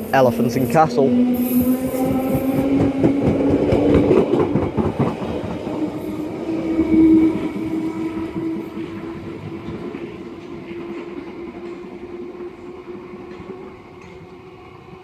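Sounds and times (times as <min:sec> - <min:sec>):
train traction motors whining: 0:00.0 - 0:11.1.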